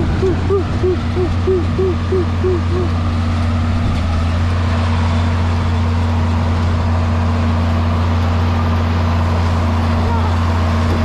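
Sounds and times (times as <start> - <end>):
tractor engine running under load: 0.0 - 11.0.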